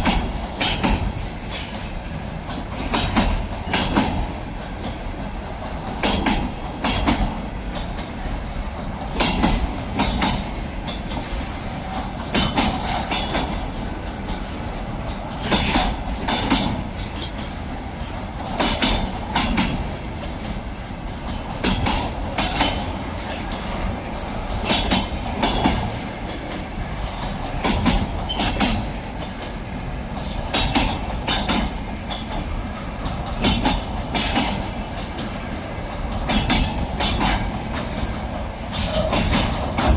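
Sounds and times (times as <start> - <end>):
rumble of wheels on rail: 0.0 - 39.9
wheels clacking over rail joints: 0.0 - 39.9.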